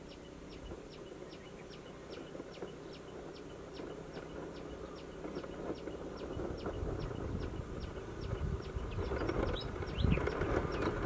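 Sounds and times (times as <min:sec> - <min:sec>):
bird chirping: 0:00.0 - 0:11.0
distant motorbike engine hum: 0:00.0 - 0:11.0.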